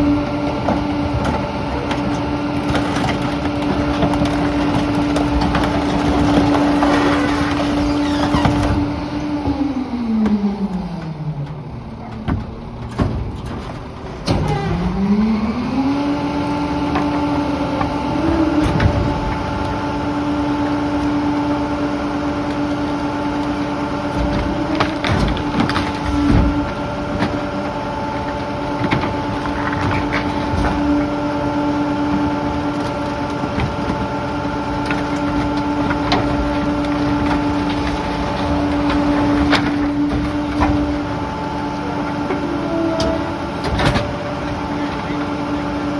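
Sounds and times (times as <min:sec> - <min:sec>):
garbage truck engine revving: 0:00.0 - 0:45.9
debris knocking and clattering: 0:00.5 - 0:09.0, 0:11.9 - 0:14.8, 0:22.5 - 0:42.4.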